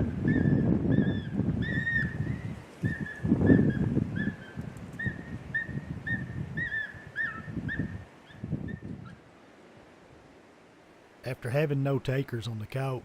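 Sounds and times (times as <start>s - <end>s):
wind rumble on microphone: 0.0s - 10.3s
coyote whines from caller: 0.2s - 9.2s.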